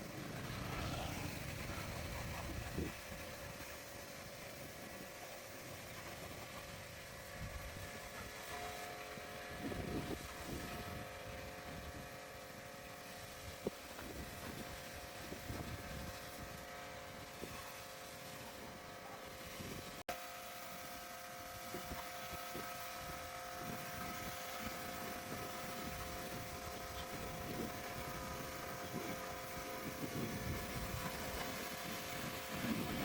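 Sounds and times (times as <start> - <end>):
motor humming: 0.0 - 33.0.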